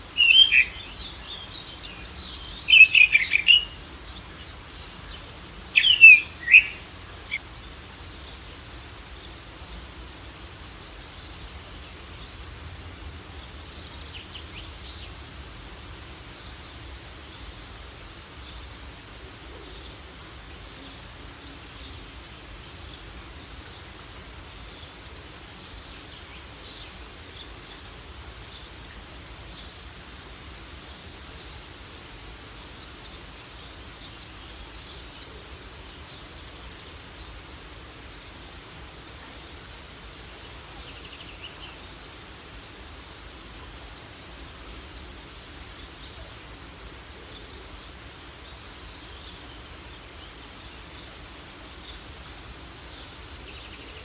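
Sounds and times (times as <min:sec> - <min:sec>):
insect drone: 0:00.0 - 0:54.0
steady hiss: 0:00.0 - 0:54.0
short bird chirps: 0:00.1 - 0:01.1, 0:02.0 - 0:03.8, 0:05.8 - 0:07.4.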